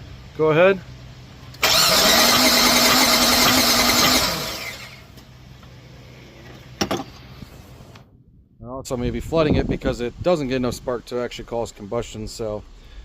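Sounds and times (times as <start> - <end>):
engine starter cranking whine: 1.5 - 5.2.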